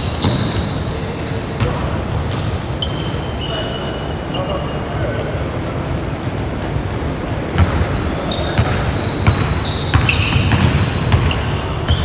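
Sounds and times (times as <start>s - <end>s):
sneakers squeaking on floor: 0.0s - 12.0s
basketball bouncing on hardwood: 8.6s - 12.0s.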